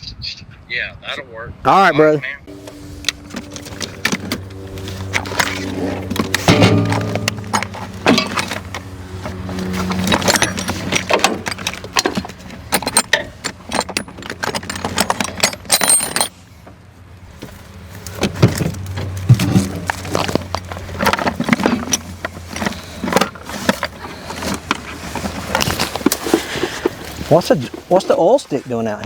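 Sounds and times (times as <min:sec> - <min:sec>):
steady low hum: 0:02.4 - 0:13.6
metallic clinks and rattles: 0:03.1 - 0:16.4.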